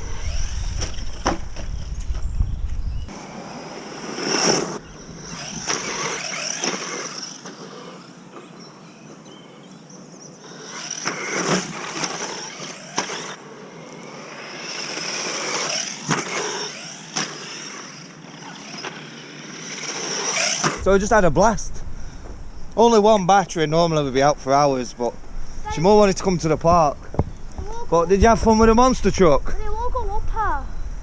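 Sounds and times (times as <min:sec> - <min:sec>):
toy truck motor whining: 0:00.0 - 0:01.4, 0:03.1 - 0:08.5, 0:10.4 - 0:20.8.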